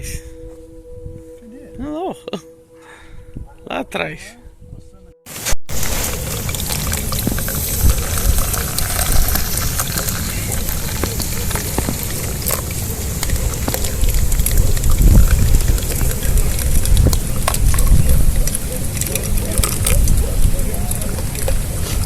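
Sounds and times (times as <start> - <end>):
water pouring through cloth: 5.3 - 22.0
steady low rumble: 5.7 - 22.0.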